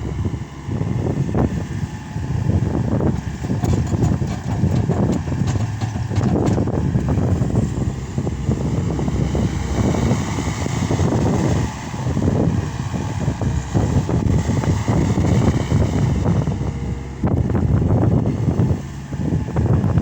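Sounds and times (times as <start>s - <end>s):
diesel loader engine rumbling: 0.0s - 20.0s.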